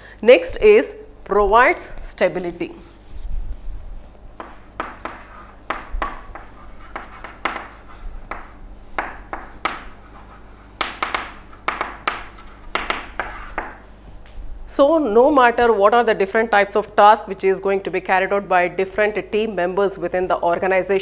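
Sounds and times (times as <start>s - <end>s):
low steady hum: 0.0s - 21.0s
pen scratching on paper: 4.4s - 13.7s.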